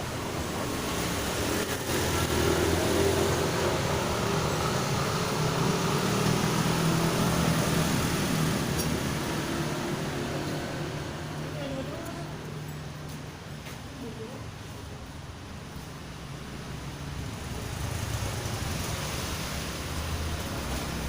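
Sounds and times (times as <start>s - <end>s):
engine humming: 0.0s - 13.6s.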